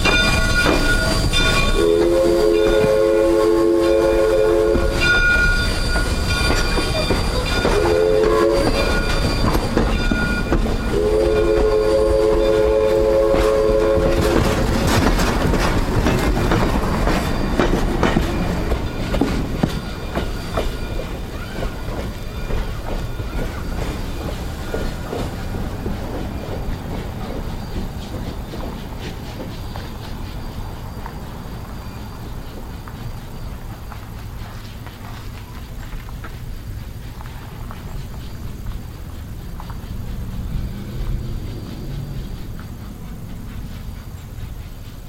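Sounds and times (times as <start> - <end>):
train clanking and clattering: 0.0 - 45.0
steam whistle chord: 0.9 - 6.4, 7.6 - 9.4, 10.9 - 14.4.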